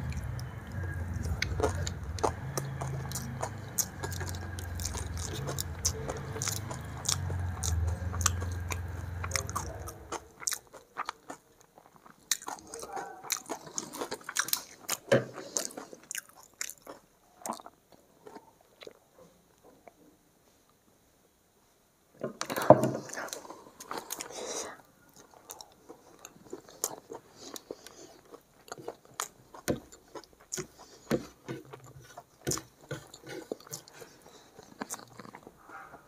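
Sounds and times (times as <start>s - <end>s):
low steady hum: 0.0s - 10.4s
chewing: 0.0s - 19.0s, 22.4s - 36.0s.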